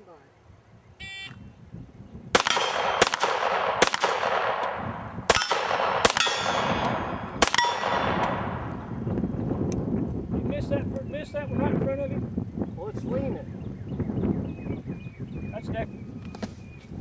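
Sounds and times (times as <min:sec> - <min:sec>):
gunshots: 0:02.3 - 0:08.7.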